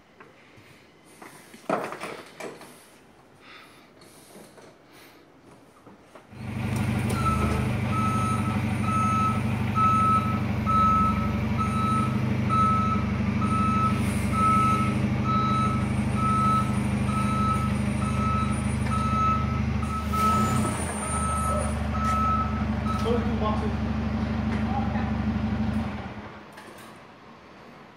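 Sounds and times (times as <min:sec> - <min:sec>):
reversing alarm beeping: 0:07.1 - 0:23.3.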